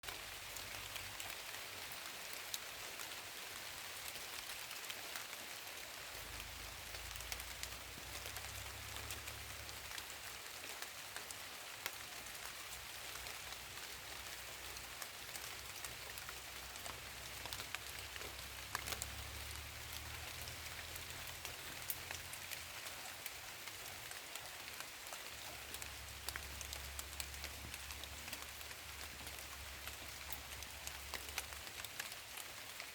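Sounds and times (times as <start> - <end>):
rain falling: 0.0 - 32.9.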